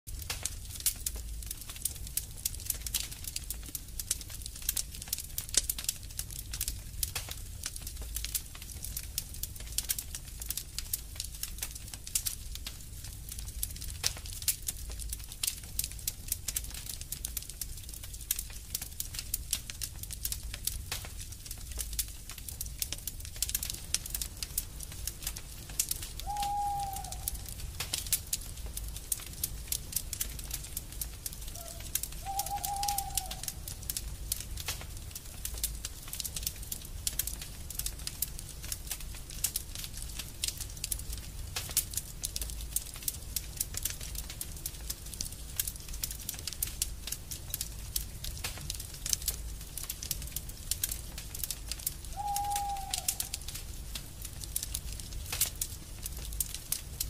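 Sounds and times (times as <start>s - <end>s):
wood fire crackling and popping: 0.1s - 57.0s
short low bird calls: 26.2s - 27.5s, 31.6s - 33.6s, 52.1s - 53.3s.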